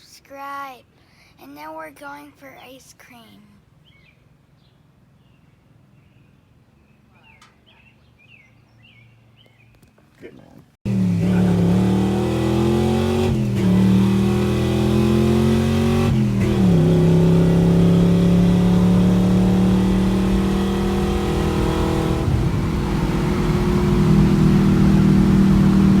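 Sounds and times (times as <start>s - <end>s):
engine revving through gears: 10.9s - 26.0s.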